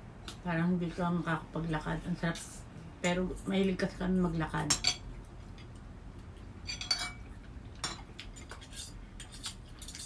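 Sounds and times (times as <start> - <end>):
low room hum: 0.0 - 10.0
utensils clinking against dishes: 6.6 - 10.0.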